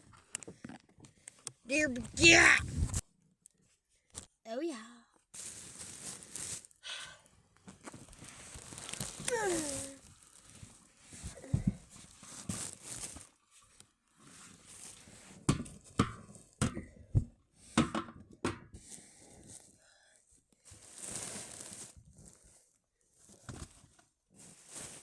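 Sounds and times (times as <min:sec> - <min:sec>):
rustling and crinkling handling: 0:05.3 - 0:06.8, 0:07.5 - 0:17.5, 0:20.6 - 0:25.0.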